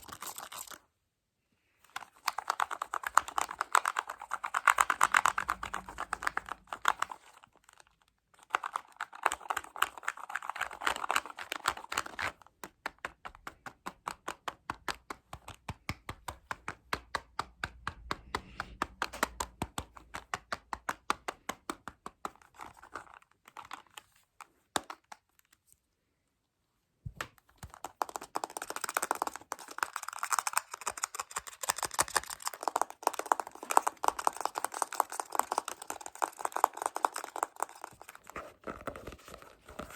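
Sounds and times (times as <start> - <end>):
fast tapping close to microphone: 2.2 - 7.2, 11.9 - 22.4, 27.1 - 38.2
scratching close to microphone: 2.4 - 7.9, 31.2 - 39.9.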